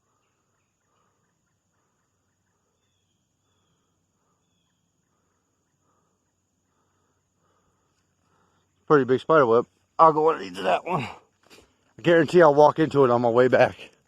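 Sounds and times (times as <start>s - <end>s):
faint woodland ambience: 0.0s - 14.0s.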